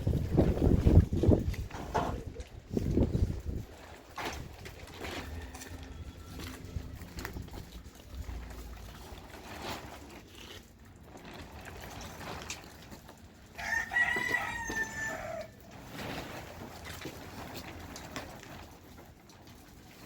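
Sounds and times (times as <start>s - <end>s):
rooster crowing: 5.0s - 6.9s, 13.6s - 15.6s.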